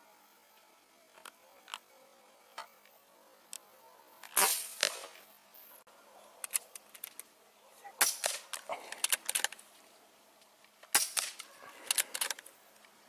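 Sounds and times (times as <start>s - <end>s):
air rifle shot crack: 4.3s - 5.2s, 8.0s - 8.7s, 10.9s - 11.5s.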